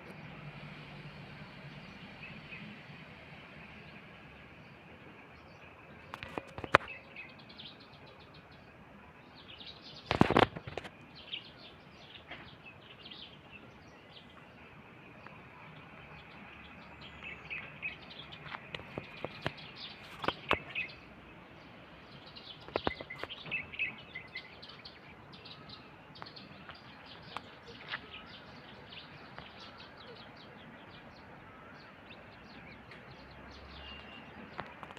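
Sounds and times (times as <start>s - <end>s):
steady outdoor hiss: 0.0s - 34.9s
small birds chirping: 1.1s - 34.9s.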